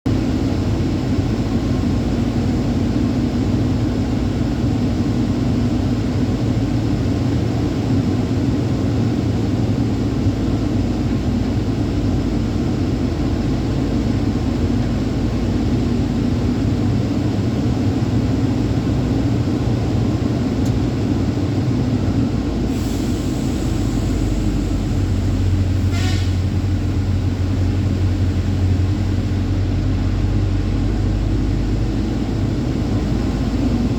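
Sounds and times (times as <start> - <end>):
truck engine and road drone: 0.0 - 33.9
short hiss: 22.7 - 25.2.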